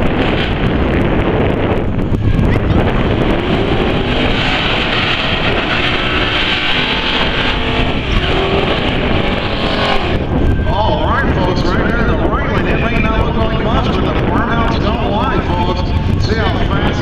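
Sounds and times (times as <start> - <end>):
truck engine running: 0.0 - 17.0
wind noise on microphone: 0.0 - 17.0.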